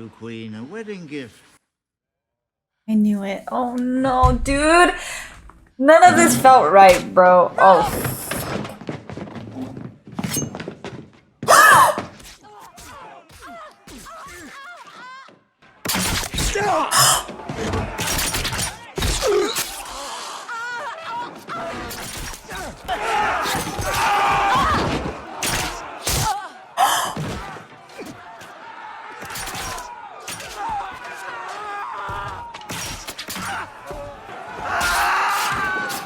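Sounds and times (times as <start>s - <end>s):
voices shouting: 5.8s - 8.4s, 11.5s - 12.0s, 16.5s - 19.0s, 19.6s - 36.0s
loud cry: 11.5s - 12.0s, 16.6s - 17.5s, 22.9s - 25.0s, 25.9s - 27.5s, 34.3s - 36.0s.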